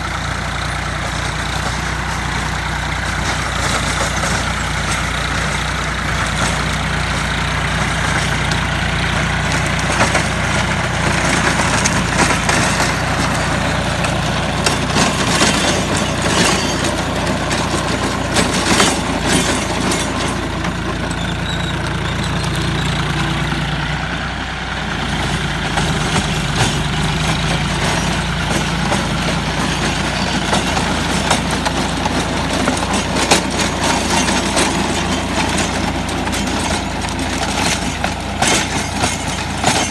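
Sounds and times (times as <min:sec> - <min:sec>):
tiller knocks and rattles: 0:00.0 - 0:39.9
tractor engine running: 0:00.0 - 0:39.9.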